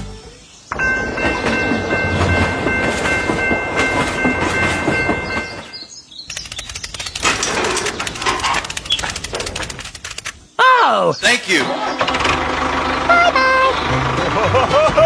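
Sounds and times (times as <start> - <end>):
train wheel clatter: 0.7 - 10.4
train horn chord: 13.1 - 14.9.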